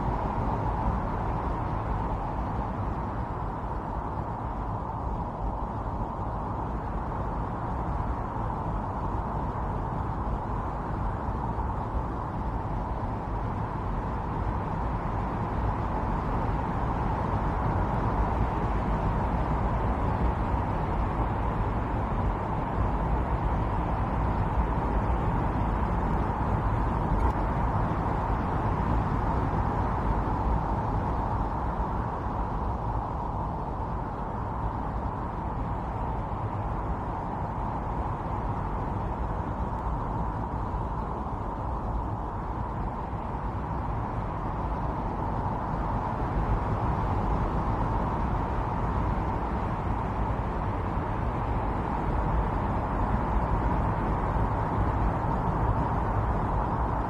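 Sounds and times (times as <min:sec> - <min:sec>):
snowstorm wind blowing: 0:00.0 - 0:57.0.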